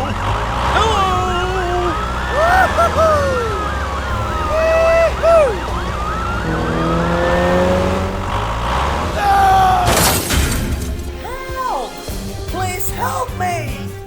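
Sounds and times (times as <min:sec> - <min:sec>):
low engine hum: 0:00.0 - 0:11.4
sliding pitched tones: 0:00.4 - 0:12.2
siren yelping: 0:00.8 - 0:10.2.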